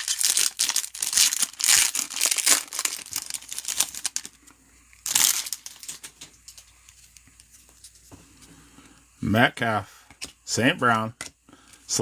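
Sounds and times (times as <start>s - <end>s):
plastic wrapper crinkling: 0.0s - 7.5s.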